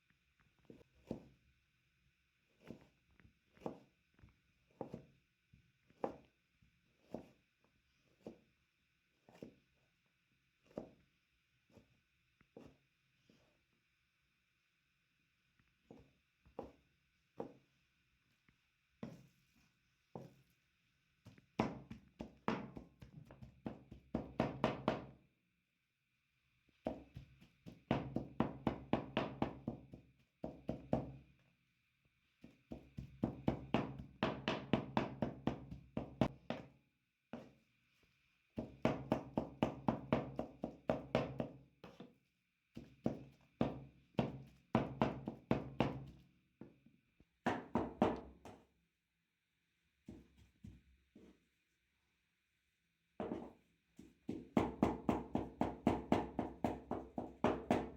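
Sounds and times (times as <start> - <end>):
meat being pounded: 21.6 - 25.1, 26.9 - 31.1, 32.7 - 36.7, 43.6 - 46.1, 54.3 - 57.9.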